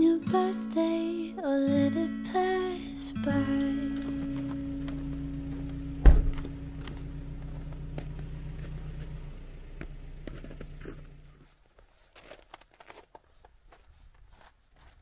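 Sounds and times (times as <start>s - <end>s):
car engine idling: 1.9s - 11.6s
heavy thump: 6.0s - 7.0s.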